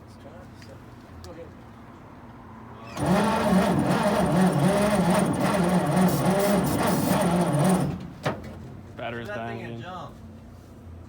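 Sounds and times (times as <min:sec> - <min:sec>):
engine cranking by starter motor: 0:03.0 - 0:08.7.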